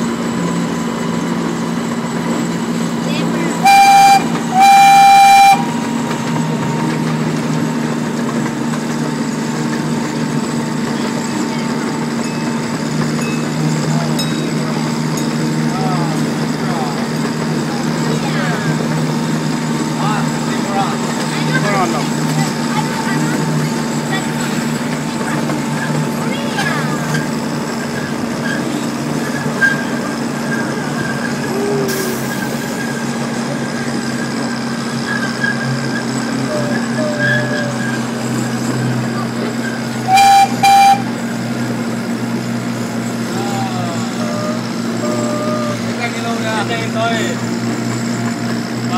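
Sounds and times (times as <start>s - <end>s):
train engine running: 0.0s - 48.9s
train horn blast: 3.6s - 5.8s, 40.1s - 41.2s.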